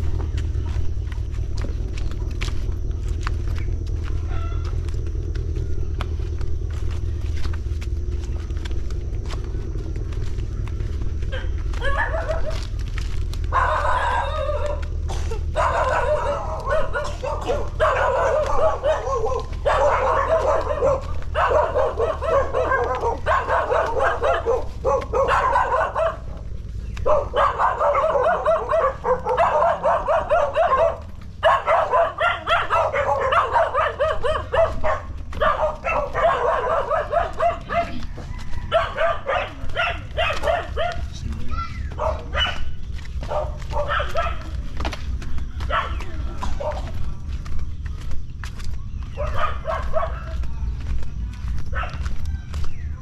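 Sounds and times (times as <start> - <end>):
steady low rumble: 0.0 - 53.0
dog barking: 9.9 - 47.3, 49.0 - 50.7, 51.4 - 52.8.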